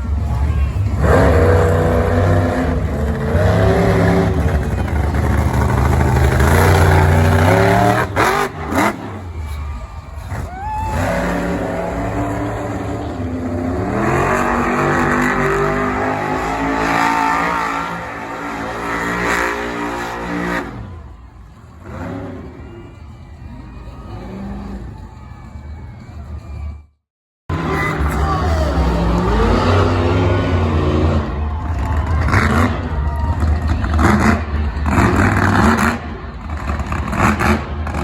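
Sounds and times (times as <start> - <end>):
monster truck engine revving: 0.0 - 26.8, 27.5 - 38.0.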